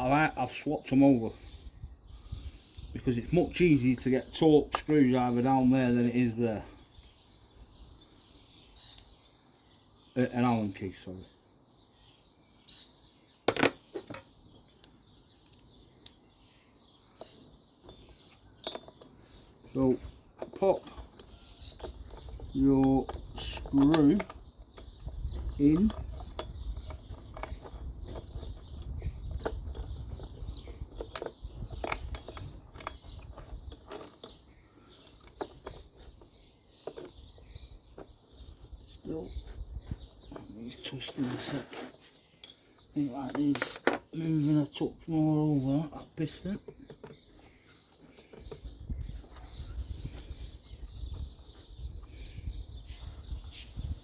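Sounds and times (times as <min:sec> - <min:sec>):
tools tapping on metal: 0:17.2 - 0:19.2.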